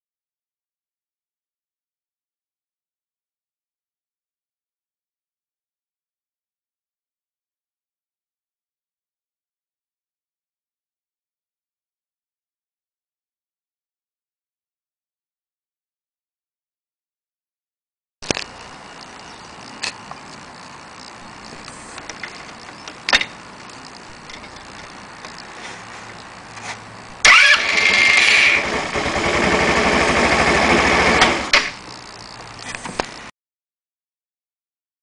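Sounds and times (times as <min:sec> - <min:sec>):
scooter engine running: 0:18.2 - 0:33.3.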